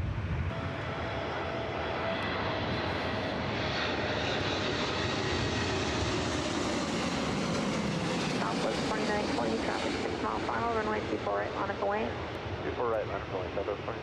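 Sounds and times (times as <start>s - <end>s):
jet engines at high thrust: 0.0s - 14.0s.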